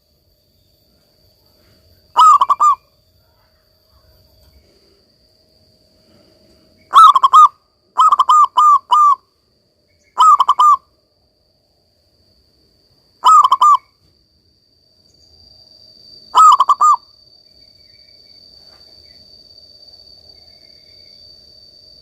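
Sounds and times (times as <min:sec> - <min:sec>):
faint high hum: 0:00.0 - 0:22.0
dove cooing: 0:02.2 - 0:02.8, 0:06.9 - 0:09.2, 0:10.2 - 0:10.8, 0:13.2 - 0:13.9, 0:16.4 - 0:17.0.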